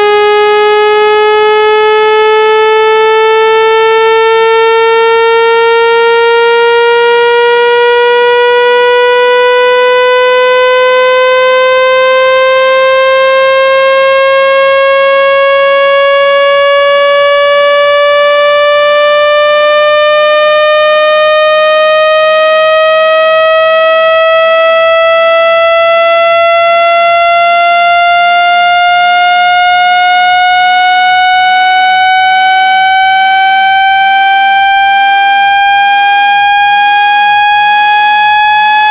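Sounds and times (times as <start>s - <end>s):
buzzy electronic tone rising in pitch: 0.0s - 38.9s.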